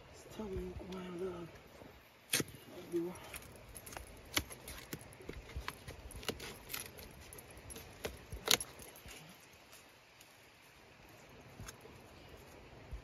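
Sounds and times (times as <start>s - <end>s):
digging scrapes and knocks: 2.3s - 9.8s.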